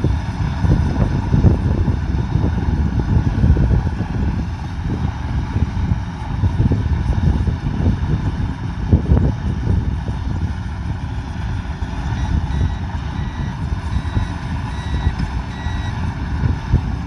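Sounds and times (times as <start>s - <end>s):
harvester engine rumbling: 0.0s - 17.0s
reversing alarm beeping: 12.0s - 16.5s.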